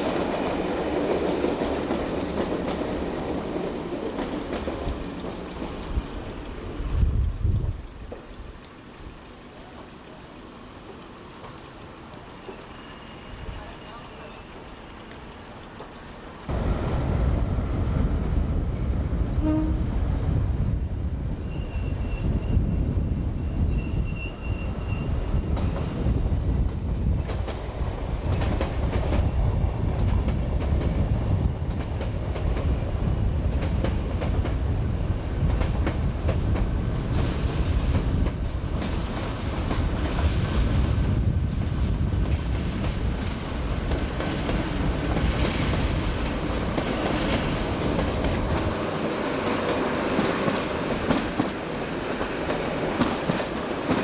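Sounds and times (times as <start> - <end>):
train rumbling past: 0.0 - 54.0
high-pitched wheel squeal: 21.4 - 25.5.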